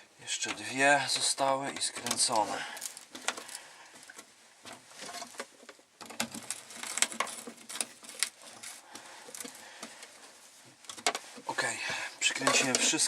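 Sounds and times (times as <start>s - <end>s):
hand tool clicking and scraping: 12.3s - 13.0s.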